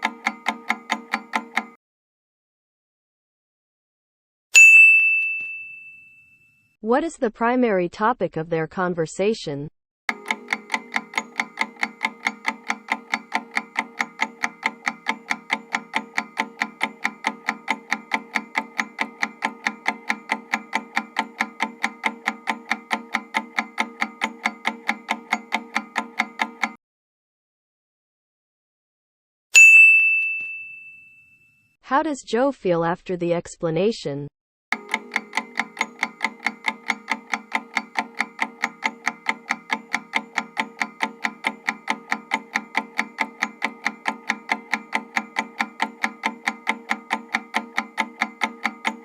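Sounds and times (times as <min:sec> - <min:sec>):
countdown timer ticking: 0:00.0 - 0:01.8, 0:10.1 - 0:26.8, 0:34.7 - 0:49.0.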